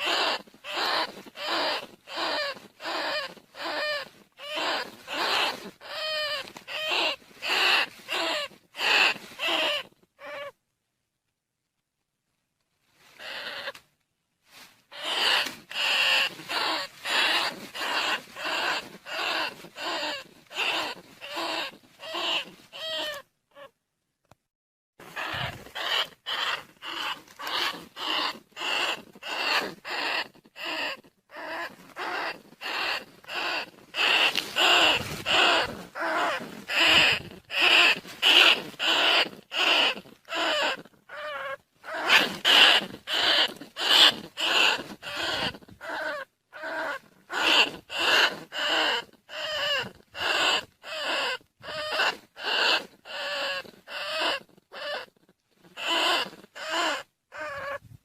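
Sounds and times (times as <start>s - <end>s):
shrill rat squeaks: 0.0s - 10.6s, 13.1s - 13.8s, 14.9s - 23.7s, 25.1s - 57.8s.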